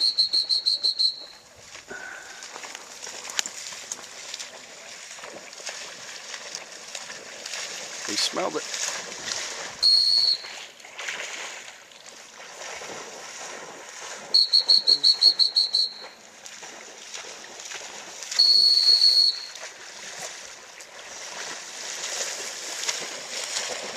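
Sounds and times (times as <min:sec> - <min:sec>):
dog whistle toots and blasts: 0:00.0 - 0:01.4, 0:09.8 - 0:10.6, 0:14.3 - 0:16.1, 0:18.4 - 0:19.6
shallow water sloshing: 0:00.0 - 0:23.9.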